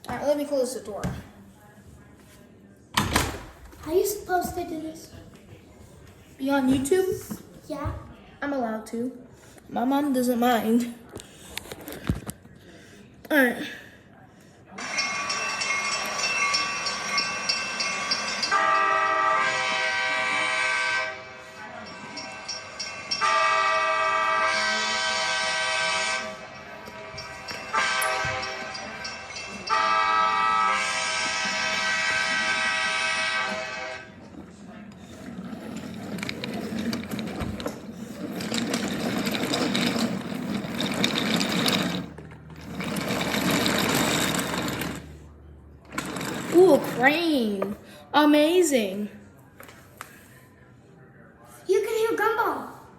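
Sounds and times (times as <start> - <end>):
toy train horn blasts: 18.4 - 21.6, 23.1 - 26.6, 27.7 - 34.2.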